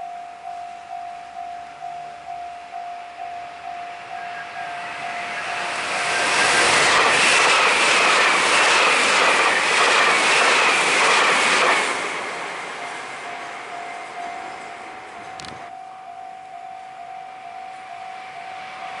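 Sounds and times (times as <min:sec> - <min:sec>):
electronic crossing warning bell: 0:00.0 - 0:06.3, 0:12.6 - 0:19.0
train wheels clattering: 0:05.2 - 0:15.6.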